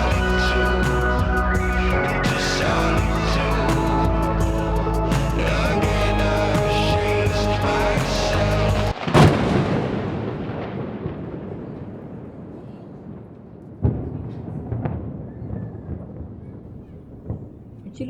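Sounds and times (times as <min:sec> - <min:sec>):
music: 0:00.0 - 0:09.0
thunder cracking and rumbling: 0:00.0 - 0:18.0.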